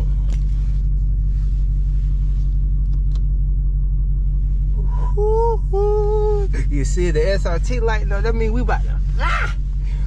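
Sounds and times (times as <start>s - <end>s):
car engine idling: 0.0s - 10.0s
man whooping: 5.0s - 6.6s, 9.2s - 9.6s.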